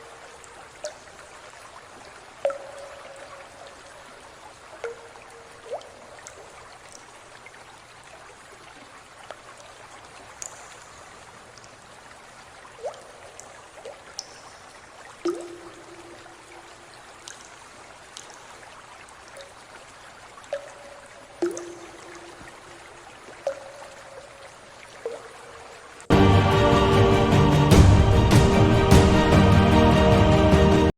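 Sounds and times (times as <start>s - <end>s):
water drips and plops: 0.0s - 26.1s
water running and trickling: 0.0s - 30.9s
water splash: 12.8s - 18.6s.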